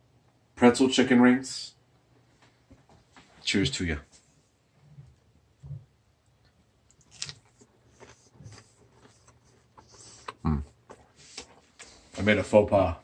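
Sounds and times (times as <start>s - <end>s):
chewing crunchy fried chicken: 6.3s - 12.1s.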